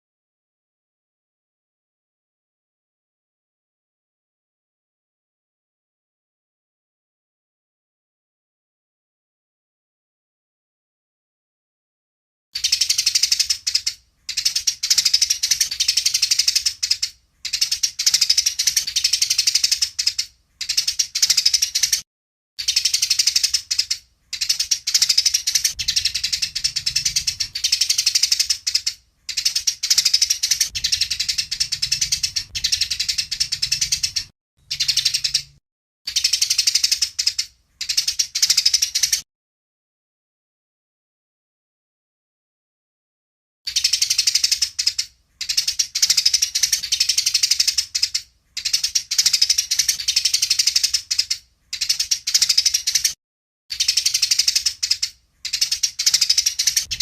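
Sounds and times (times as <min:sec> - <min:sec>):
sparrows chirping chatter: 0:12.6 - 0:22.0, 0:22.6 - 0:39.2, 0:43.7 - 0:57.0.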